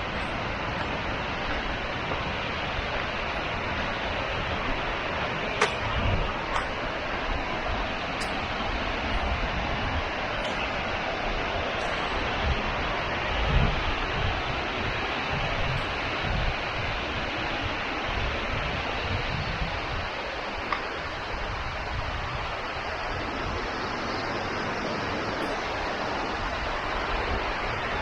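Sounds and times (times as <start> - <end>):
running water rushing: 0.0 - 28.0
wind buffeting microphone: 0.0 - 28.0.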